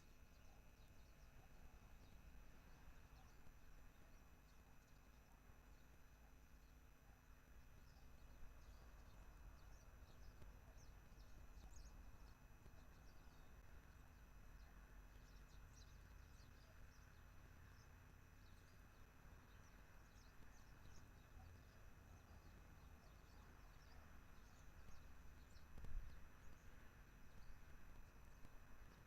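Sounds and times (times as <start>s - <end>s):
small birds chirping: 7.3s - 29.0s.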